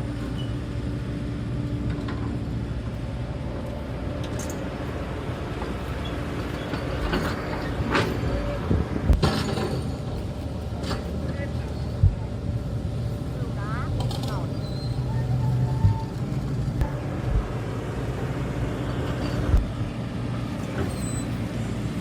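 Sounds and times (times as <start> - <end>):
excavator diesel engine running: 0.0 - 22.0
sharp metal clanks and knocks: 9.2 - 10.2.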